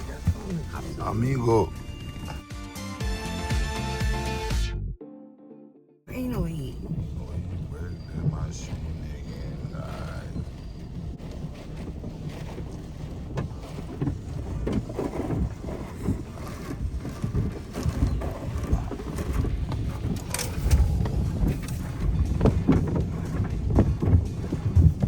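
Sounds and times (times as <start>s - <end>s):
car wash equipment rumbling: 0.0s - 2.5s, 6.1s - 25.0s
water splashes: 6.2s - 25.0s
irregular knocks: 13.3s - 25.0s.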